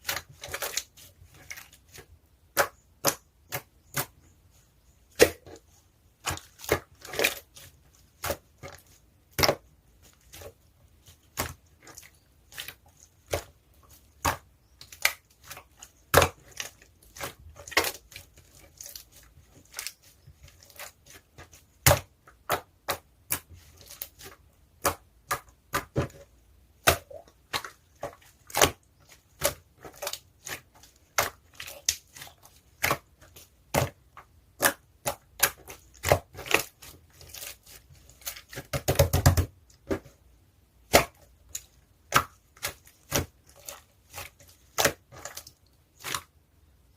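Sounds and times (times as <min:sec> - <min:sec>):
slime clicking and crackling: 0:06.2 - 0:26.2, 0:26.8 - 0:40.0, 0:40.8 - 0:46.3.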